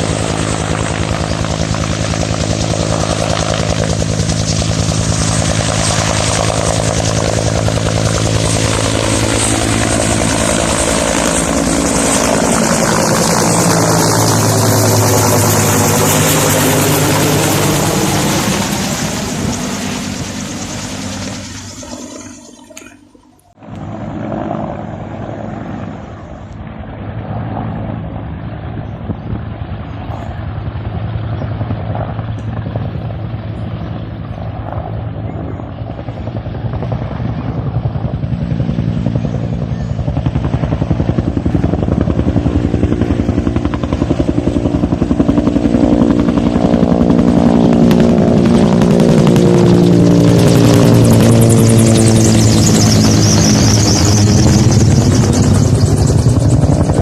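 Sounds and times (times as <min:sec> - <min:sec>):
helicopter rotor beat and engine: 0:00.0 - 0:57.0.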